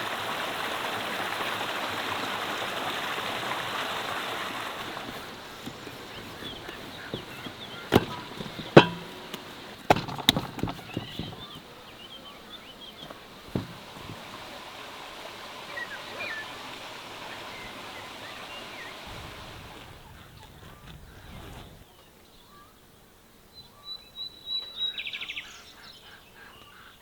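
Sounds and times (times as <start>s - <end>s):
outdoor background: 0.0s - 27.0s
small birds chirping: 4.7s - 14.6s, 15.5s - 19.1s
sharp knocks: 5.1s - 11.6s.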